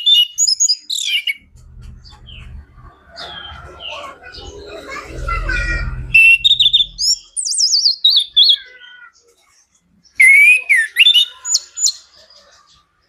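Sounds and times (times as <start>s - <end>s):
bird singing whistles and trills: 0.0s - 1.4s, 6.1s - 8.7s, 10.1s - 12.1s.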